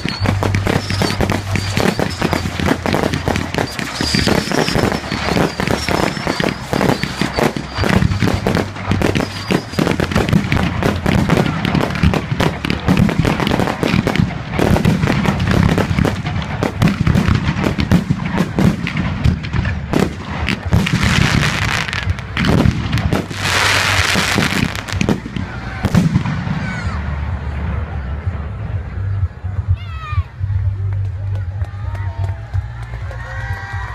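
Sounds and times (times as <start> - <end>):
fireworks hissing: 0.0 - 25.3
fireworks bangs and pops: 0.0 - 27.0.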